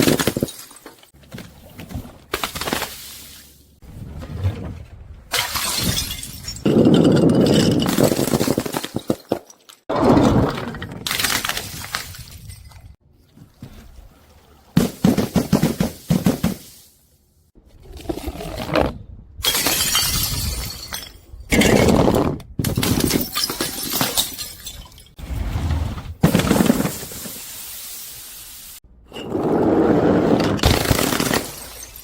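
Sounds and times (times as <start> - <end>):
glass bottles shattering: 0.0 - 1.1, 5.3 - 9.8, 19.4 - 22.0, 22.7 - 25.2, 30.6 - 32.0
tinkle of falling glass shards: 23.2 - 25.2, 31.3 - 32.0.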